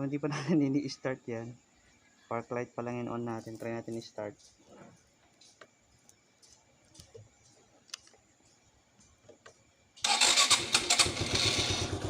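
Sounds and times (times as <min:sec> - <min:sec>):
motorcycle engine starting: 0:10.0 - 0:12.0
motorcycle starter cranking: 0:10.0 - 0:12.0.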